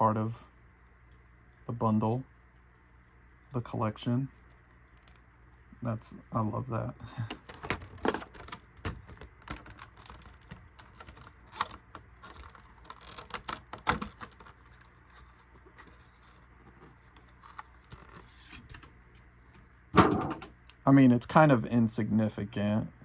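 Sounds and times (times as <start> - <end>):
small items and packaging handled: 7.0 - 20.4.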